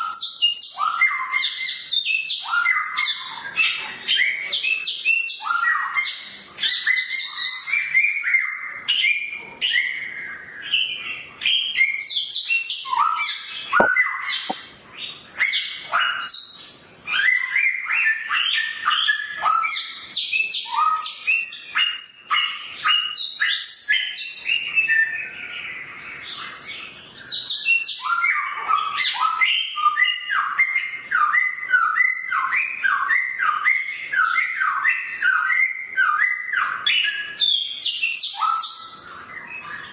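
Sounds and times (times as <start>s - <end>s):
songbird singing: 17.3s - 39.9s.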